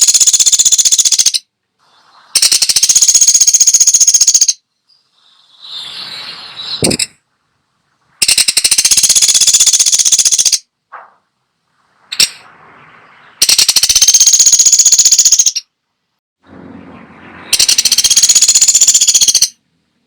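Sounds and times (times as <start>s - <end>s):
woodpecker rattling: 0.0s - 1.5s, 2.4s - 4.6s, 6.8s - 7.2s, 8.2s - 11.1s, 13.3s - 15.7s, 17.5s - 19.6s.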